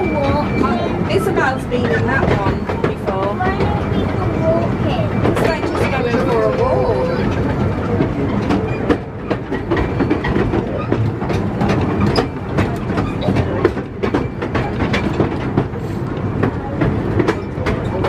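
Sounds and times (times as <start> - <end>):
train rumble: 0.0 - 18.0
train wheels clicking over rail joints: 0.0 - 18.0.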